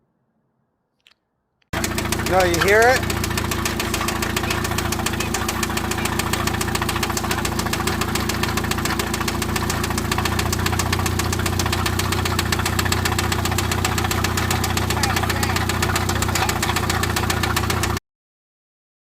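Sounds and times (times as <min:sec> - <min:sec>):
car engine idling: 0:01.7 - 0:18.0
rapid engine knock: 0:01.8 - 0:18.0.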